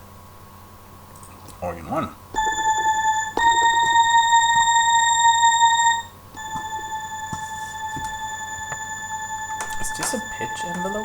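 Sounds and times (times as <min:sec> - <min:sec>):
bright organ note: 0:02.4 - 0:11.0.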